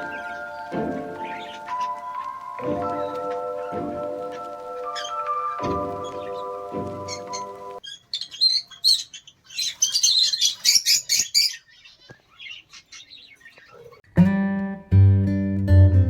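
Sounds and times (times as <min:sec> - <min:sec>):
strummed guitar music: 0:00.0 - 0:07.8, 0:14.1 - 0:16.0
small birds chirping: 0:00.0 - 0:14.0.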